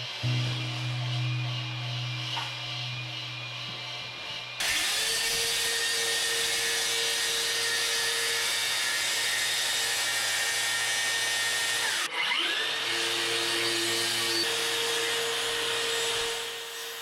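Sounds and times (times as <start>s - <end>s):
power tool running: 0.0s - 17.0s.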